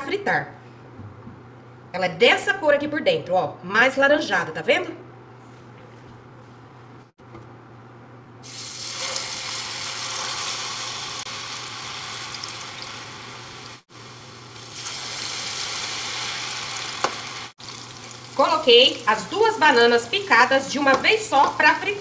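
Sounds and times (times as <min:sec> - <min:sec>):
food frying in oil: 0:08.4 - 0:22.0.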